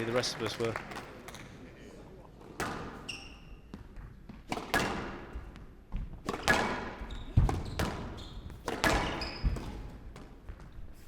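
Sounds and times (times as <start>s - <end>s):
court shoes squeaking: 2.4s - 11.0s
squash ball hits echoing: 2.6s - 10.7s.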